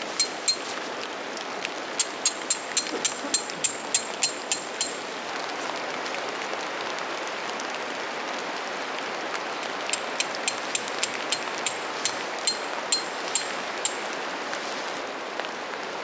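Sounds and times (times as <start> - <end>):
sharp ringing ticks: 0.0 - 0.9, 1.9 - 5.2, 9.8 - 14.3
steady rain hissing: 0.0 - 16.0.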